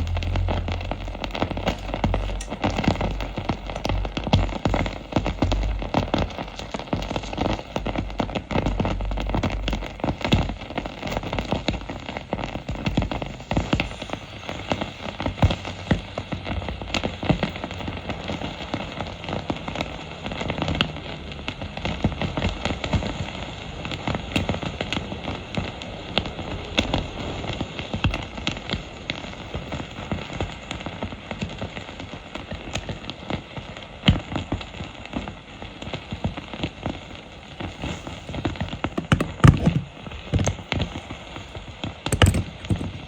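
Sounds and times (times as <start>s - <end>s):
glue sizzling and popping: 0.0s - 17.2s, 37.6s - 43.0s.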